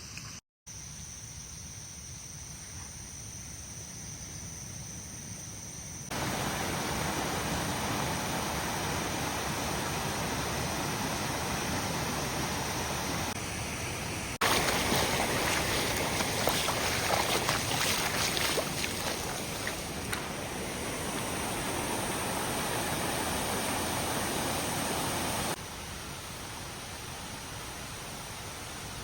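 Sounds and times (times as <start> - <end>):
stream rushing over rocks: 6.1 - 13.4, 14.4 - 25.6.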